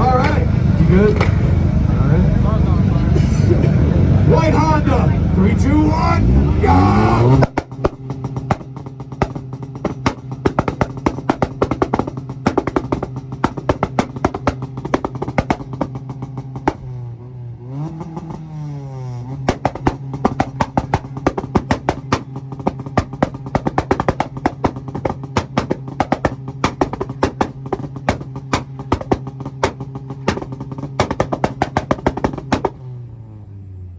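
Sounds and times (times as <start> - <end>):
exhaust pops and bangs: 0.0 - 1.7, 3.4 - 17.2, 17.8 - 33.2
engine buzzing on limiter: 0.0 - 33.9.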